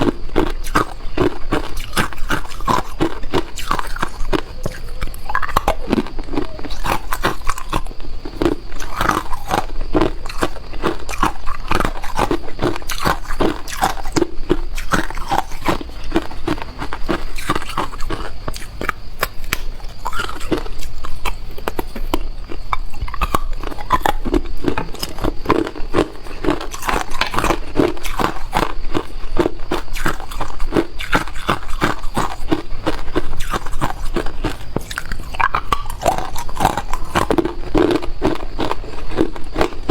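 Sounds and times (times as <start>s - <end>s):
person chewing ice: 0.0s - 39.9s.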